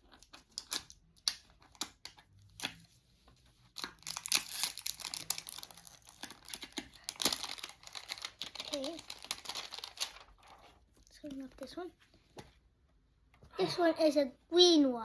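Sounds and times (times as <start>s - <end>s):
packaging wrapper crinkling and tearing: 3.8s - 10.6s.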